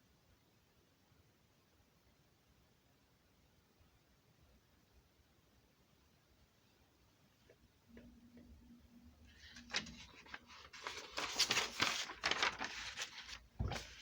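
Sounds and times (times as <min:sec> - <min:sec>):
rustling crinkling handling noise: 0:09.3 - 0:14.0.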